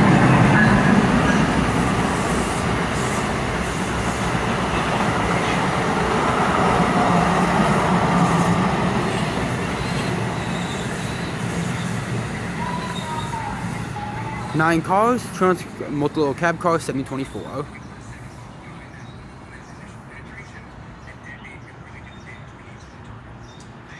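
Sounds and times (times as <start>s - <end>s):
train wheels rumbling on rail: 0.0s - 17.6s.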